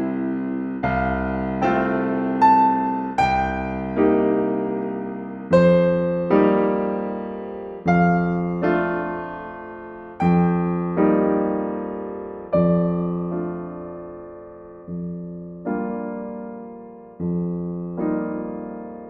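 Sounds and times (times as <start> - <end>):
gentle solo piano: 0.0 - 19.0.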